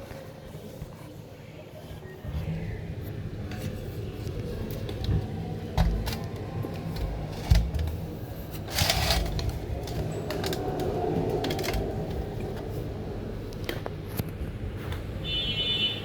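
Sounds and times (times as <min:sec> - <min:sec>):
clicks and knocks: 0:04.7 - 0:12.3.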